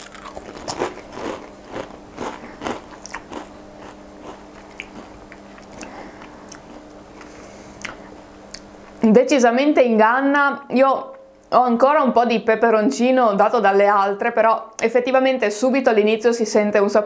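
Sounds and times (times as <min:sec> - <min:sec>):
potato crisp crunching: 0:00.0 - 0:08.7
soft chewing: 0:00.0 - 0:09.0.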